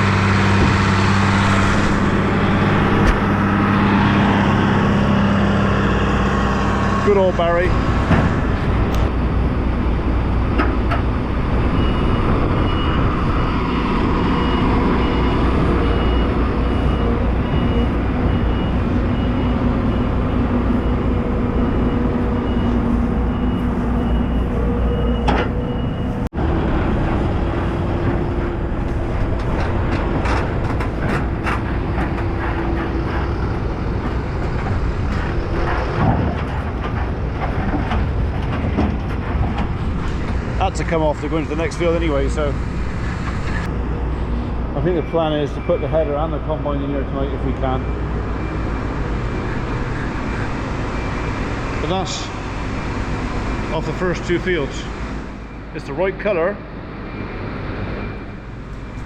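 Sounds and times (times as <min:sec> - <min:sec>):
tractor and baler running: 0:00.0 - 0:59.0
machinery ticks and rattles: 0:28.0 - 0:43.7.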